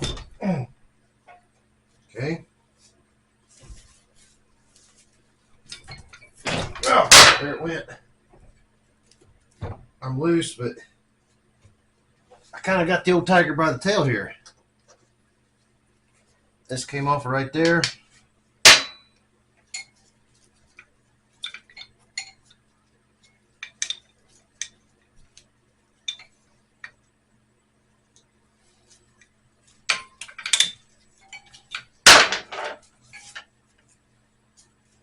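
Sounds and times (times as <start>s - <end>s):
faint steady hum: 0.0s - 35.0s
metal clank: 5.8s - 7.7s
metal tools clinking and knocking: 26.0s - 26.4s, 29.9s - 33.5s.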